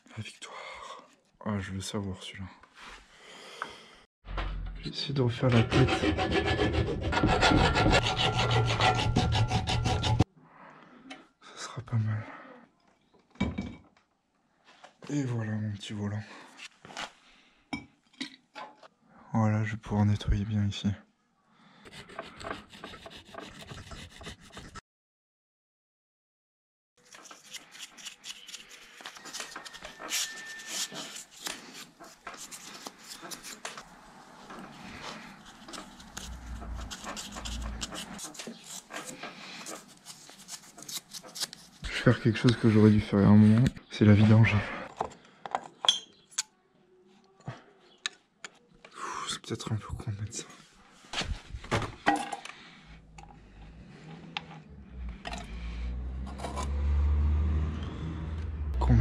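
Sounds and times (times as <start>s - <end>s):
small metal clicks and scrapes: 34.5s - 41.6s.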